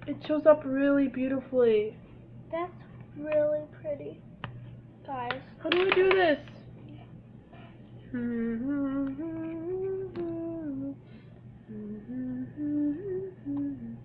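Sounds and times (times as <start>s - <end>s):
girl humming: 8.0s - 14.0s.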